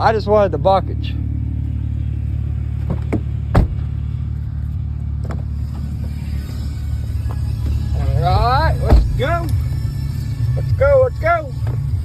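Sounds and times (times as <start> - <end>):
car engine running: 0.0 - 12.0
sharp knocks and clunks: 2.8 - 4.0.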